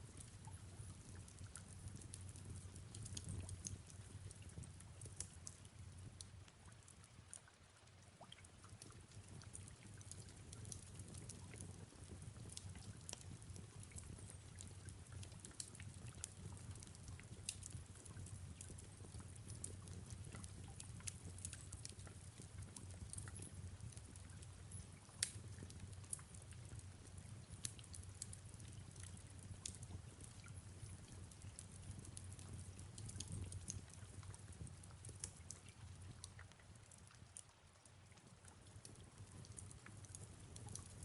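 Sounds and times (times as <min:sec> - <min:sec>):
low fire rumble: 0:00.0 - 0:07.6, 0:08.2 - 0:37.4, 0:38.0 - 0:41.0
soft rain falling: 0:00.0 - 0:41.0
fireplace crackling pops: 0:25.2 - 0:26.2.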